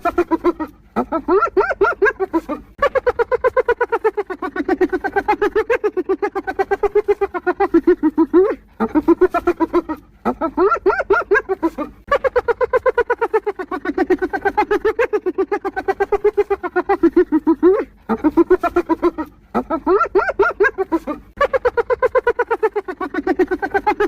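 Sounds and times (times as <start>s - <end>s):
hyena giggling: 0.0s - 24.0s.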